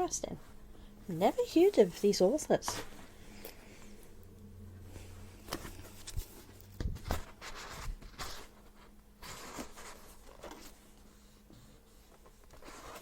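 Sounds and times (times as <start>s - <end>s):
book pages rustling and flicking: 5.4s - 13.0s.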